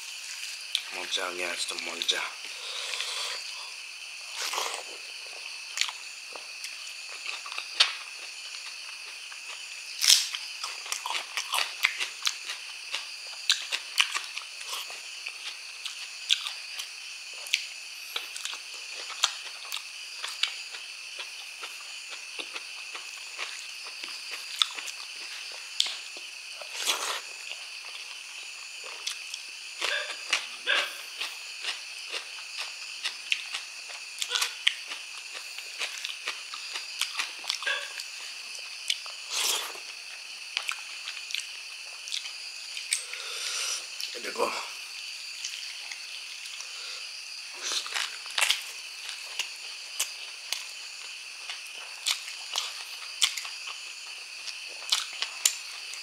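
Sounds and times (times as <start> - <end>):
close chewing with wet smacks: 10.2 - 42.9, 47.7 - 56.0.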